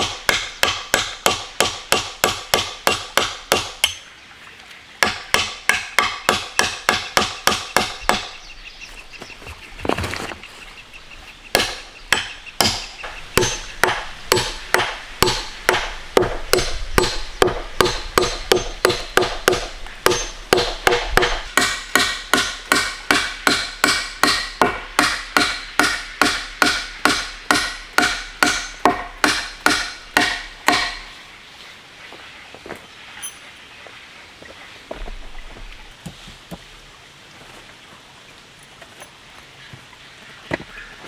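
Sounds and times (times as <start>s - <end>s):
hand tool striking with ringing: 17.8s - 31.1s.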